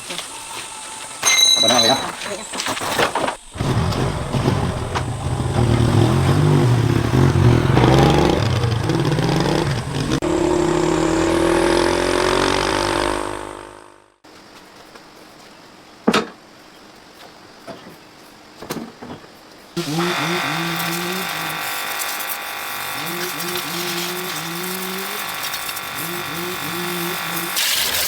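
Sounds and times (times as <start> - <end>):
motorcycle engine revving: 3.5 - 14.2, 19.8 - 28.0.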